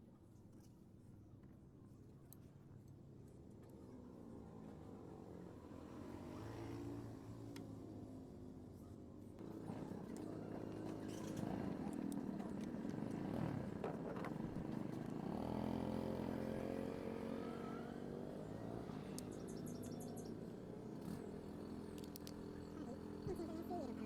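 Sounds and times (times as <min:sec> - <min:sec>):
scooter engine running: 0:09.4 - 0:24.0.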